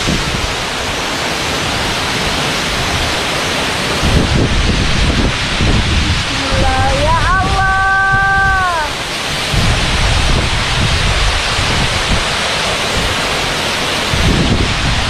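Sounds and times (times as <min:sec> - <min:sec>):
waterfall rushing: 0:00.0 - 0:15.0
wind buffeting microphone: 0:00.0 - 0:15.0
voice-like note with falling glide: 0:06.3 - 0:09.0.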